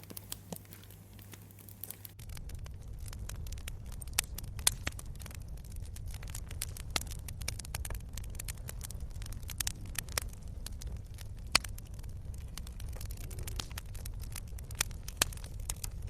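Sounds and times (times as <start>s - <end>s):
campfire snapping and popping: 0.0s - 16.0s
low rumble of fire: 0.0s - 16.0s.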